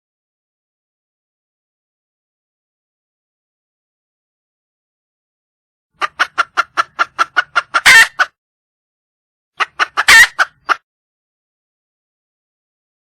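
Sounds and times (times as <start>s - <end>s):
hen clucking: 6.0s - 8.4s, 9.6s - 10.8s.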